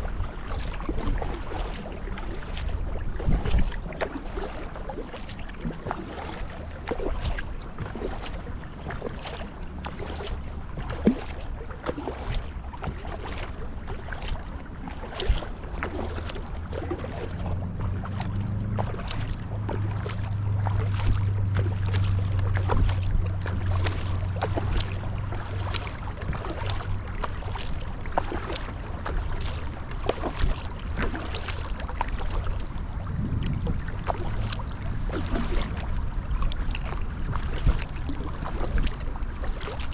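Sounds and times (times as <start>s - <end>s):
paddle strokes splashing water: 0.0s - 39.9s
rush of wind and water: 0.0s - 39.9s
low hum: 15.5s - 39.9s.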